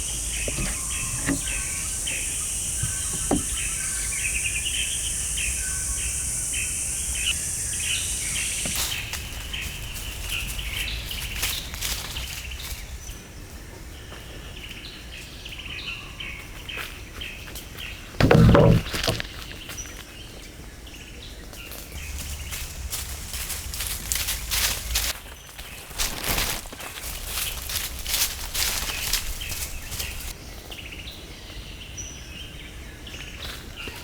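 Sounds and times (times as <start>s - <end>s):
steady high hiss: 0.0s - 13.4s, 22.0s - 25.2s
small birds chirping: 0.0s - 34.0s.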